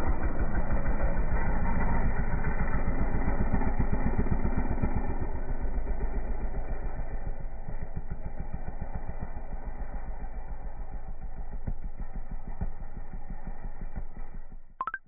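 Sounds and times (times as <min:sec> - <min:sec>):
dirt bike engine running: 0:00.0 - 0:14.7.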